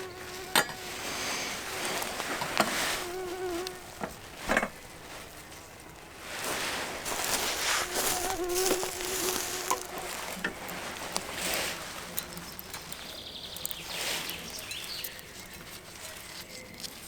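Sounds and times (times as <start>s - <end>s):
fly buzzing: 0.0s - 4.0s, 7.0s - 12.9s
sharp snaps and cracks: 7.1s - 17.0s.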